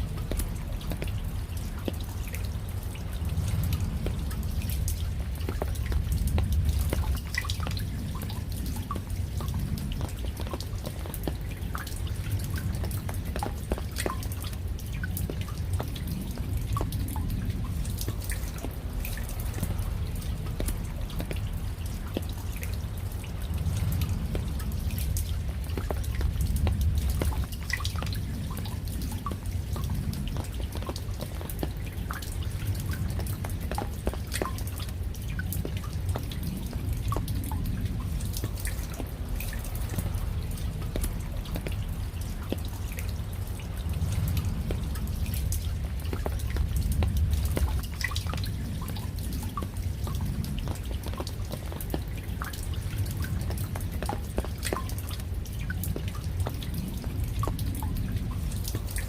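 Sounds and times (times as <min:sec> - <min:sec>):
raindrops dripping: 0:00.0 - 0:59.0
low rumble: 0:14.7 - 0:59.0.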